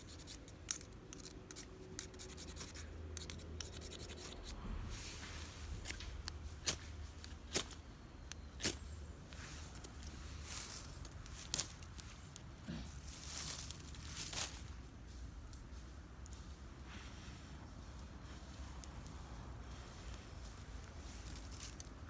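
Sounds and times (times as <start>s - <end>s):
hand scraping and rubbing: 8.6s - 14.4s.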